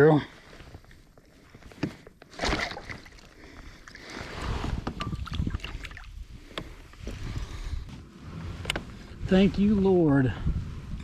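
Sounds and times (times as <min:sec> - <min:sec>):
water splashing: 0:02.3 - 0:04.4, 0:05.1 - 0:06.2
low rumbling: 0:03.4 - 0:11.0.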